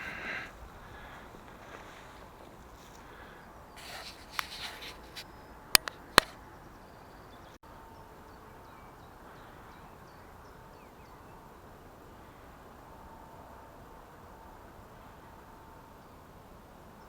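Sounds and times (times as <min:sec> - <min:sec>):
rustling handling noise: 0:00.0 - 0:06.4
sharp clicks: 0:03.9 - 0:06.4.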